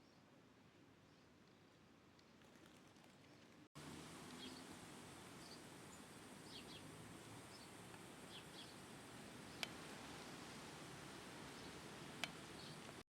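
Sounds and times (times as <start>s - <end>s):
steady hiss: 3.8s - 13.0s
small bird chirping: 4.3s - 8.8s, 11.5s - 12.9s.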